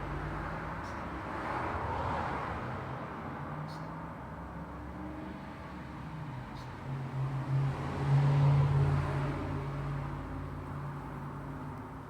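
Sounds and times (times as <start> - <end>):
background traffic: 0.0 - 12.0
vehicle passing close by: 7.1 - 12.0.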